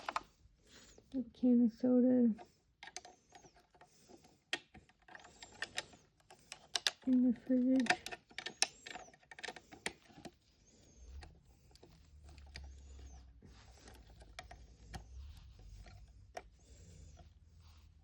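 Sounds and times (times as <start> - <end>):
small plastic toys clicking: 0.0 - 0.3, 2.8 - 10.4.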